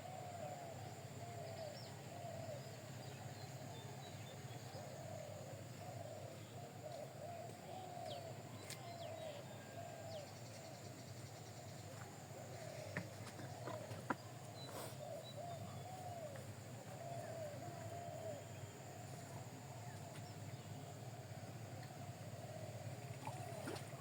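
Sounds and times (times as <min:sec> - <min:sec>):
birds cooing: 0:12.6 - 0:18.6, 0:21.8 - 0:24.0.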